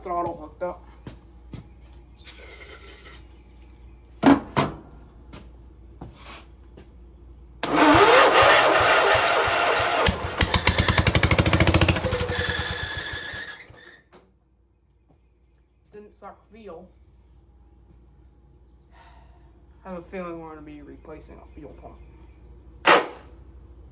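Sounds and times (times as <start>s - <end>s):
engine cranking with starter: 7.6s - 14.0s.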